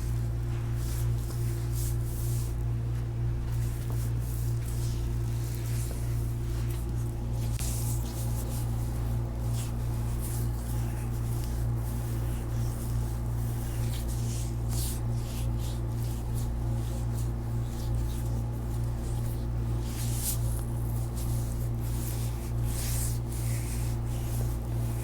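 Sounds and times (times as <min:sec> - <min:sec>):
hands rubbing skin: 0:00.0 - 0:25.0
steady low hum: 0:00.0 - 0:25.0.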